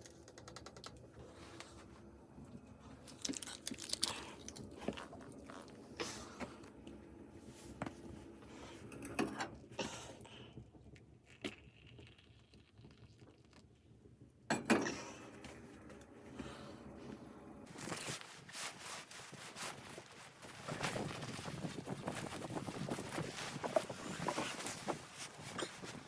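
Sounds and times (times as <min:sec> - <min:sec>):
rustling: 0:17.7 - 0:26.0.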